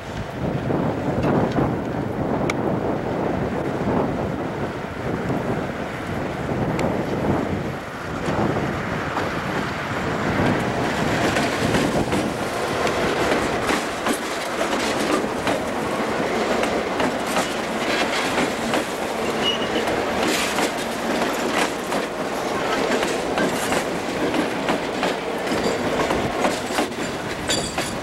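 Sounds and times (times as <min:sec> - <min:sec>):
train wheels clicking over rail joints: 0:08.2 - 0:28.0
high wheel squeal: 0:19.2 - 0:19.9.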